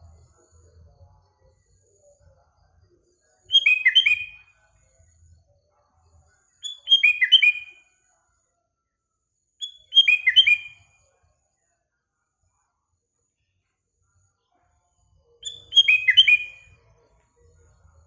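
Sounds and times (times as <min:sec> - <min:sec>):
bird singing whistled notes: 0:03.5 - 0:04.6, 0:06.6 - 0:07.8, 0:09.6 - 0:10.9, 0:15.4 - 0:16.8.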